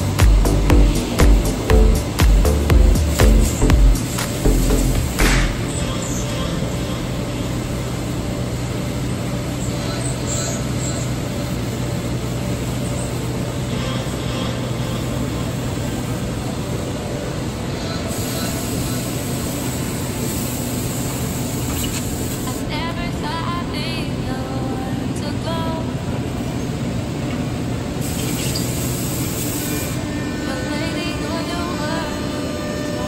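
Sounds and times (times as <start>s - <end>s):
cnc wood router running: 29.0s - 33.0s.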